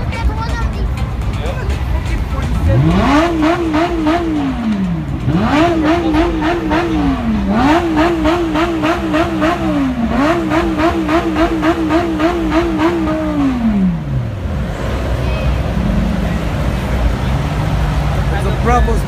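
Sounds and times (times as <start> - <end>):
car engine revving on limiter: 2.5 - 15.1.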